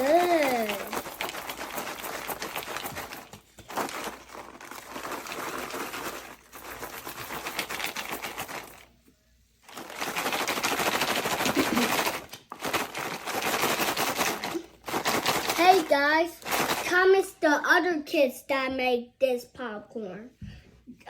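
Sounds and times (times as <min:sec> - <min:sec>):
popcorn popping in a pot: 0:00.0 - 0:08.9, 0:09.7 - 0:17.0.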